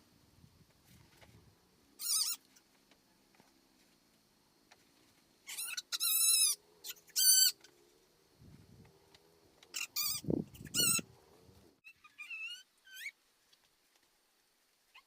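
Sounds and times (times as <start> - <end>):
high-pitched animal cries: 2.0 - 2.5, 9.8 - 11.1, 11.8 - 13.2.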